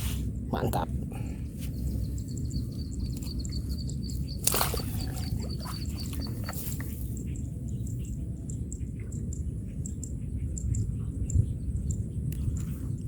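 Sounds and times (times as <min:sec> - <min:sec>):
small animal chirping: 0:02.0 - 0:06.8.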